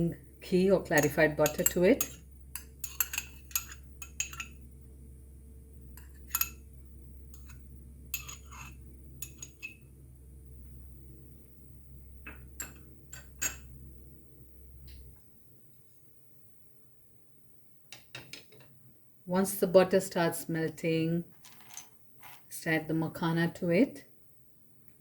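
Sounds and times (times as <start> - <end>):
steady low hum: 0.0 - 15.2
spoon clinking against pan: 1.0 - 4.6, 8.2 - 9.8, 12.6 - 13.7.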